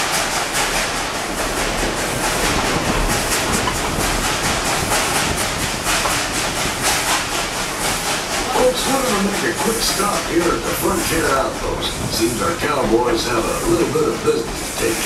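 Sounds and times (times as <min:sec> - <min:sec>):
rail clatter: 0:00.0 - 0:15.0
steam hiss: 0:00.0 - 0:15.0
steam locomotive chuffing: 0:00.0 - 0:15.0.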